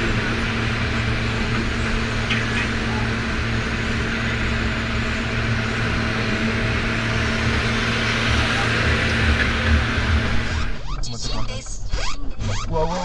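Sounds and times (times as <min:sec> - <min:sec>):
road noise: 0:00.0 - 0:10.9
vehicle engine hum: 0:00.0 - 0:11.0.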